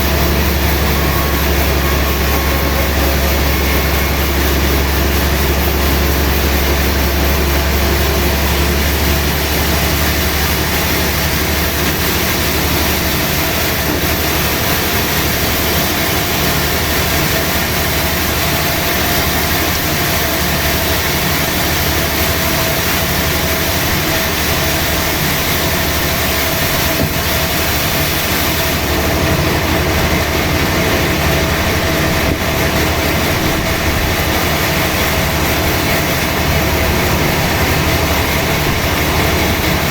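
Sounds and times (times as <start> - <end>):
faint held tone: 0.0 - 10.2
sawmill machinery running: 0.0 - 39.9.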